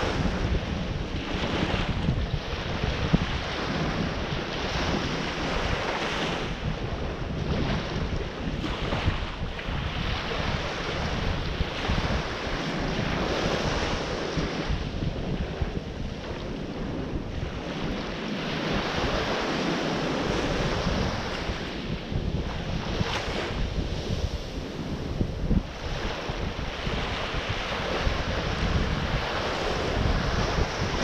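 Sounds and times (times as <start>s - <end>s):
ocean surf rushing: 0.0s - 31.0s
wind buffeting microphone: 0.0s - 31.0s.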